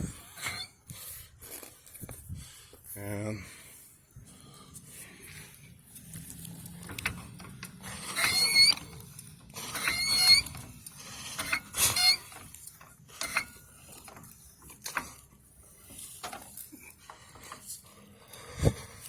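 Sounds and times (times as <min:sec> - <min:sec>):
floor jack squealing: 0:07.9 - 0:09.0, 0:09.6 - 0:10.6, 0:11.4 - 0:12.3.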